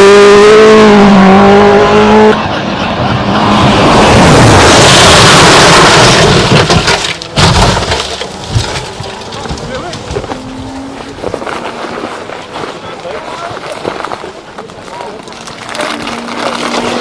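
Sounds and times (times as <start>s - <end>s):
rushing of wheels and air: 2.3s - 7.3s
wheels squealing: 8.0s - 17.0s.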